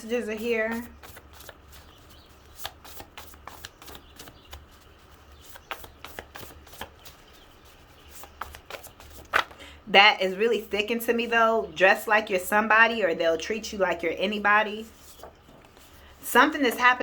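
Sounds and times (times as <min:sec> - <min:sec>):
cards being shuffled: 0:00.8 - 0:09.6.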